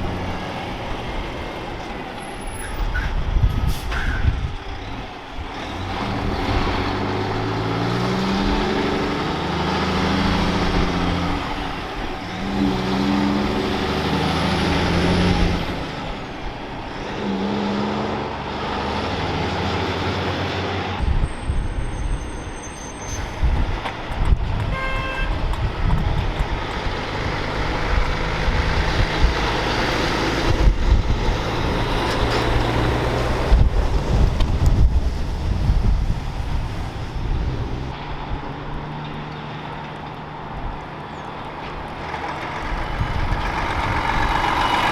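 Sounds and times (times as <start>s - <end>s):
diesel truck accelerating: 0.0s - 44.9s
truck traffic rumble: 0.0s - 44.9s
wind on microphone: 2.6s - 9.2s, 21.0s - 38.8s, 42.6s - 44.9s
truck horn toot: 24.7s - 25.5s.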